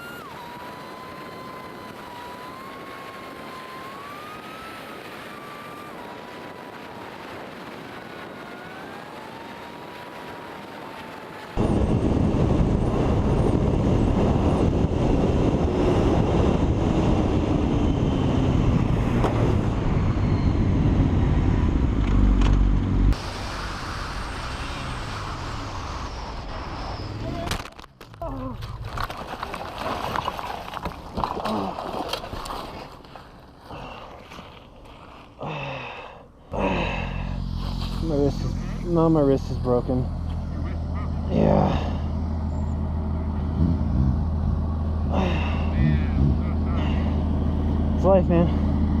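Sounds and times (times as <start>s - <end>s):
loud rushing noise: 23.1s - 27.1s.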